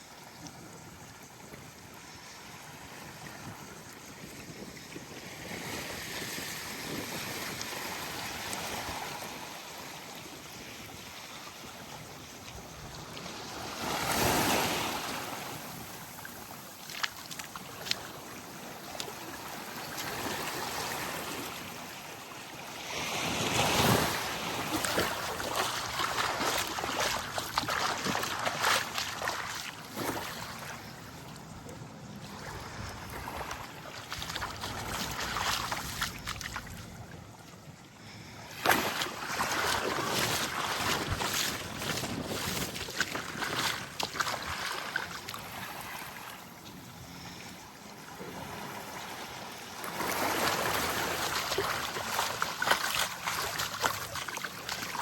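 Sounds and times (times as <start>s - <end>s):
small waves lapping on shore: 0.0s - 55.0s
larger waves breaking: 23.0s - 30.8s.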